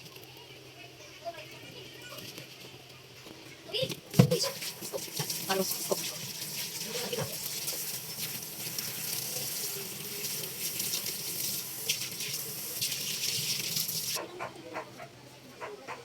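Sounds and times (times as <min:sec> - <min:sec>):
water running from a tap: 0:04.1 - 0:14.2.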